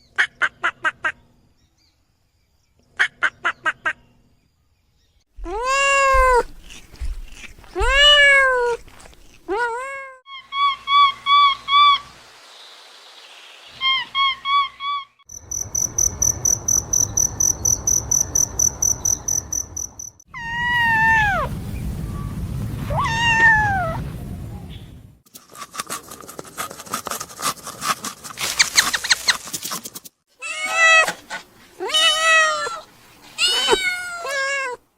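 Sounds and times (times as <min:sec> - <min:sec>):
rustling: 0:05.4 - 0:09.5, 0:20.9 - 0:33.8
cats meowing: 0:05.4 - 0:10.1, 0:22.9 - 0:24.0, 0:30.4 - 0:31.2, 0:31.8 - 0:34.8
high-pitched cat trill: 0:05.4 - 0:10.2, 0:22.9 - 0:24.0, 0:30.4 - 0:34.8.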